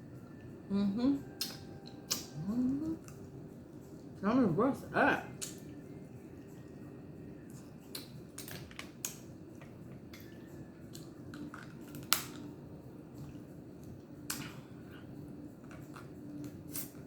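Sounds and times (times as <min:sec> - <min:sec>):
crab shells cracking: 0:11.0 - 0:12.5.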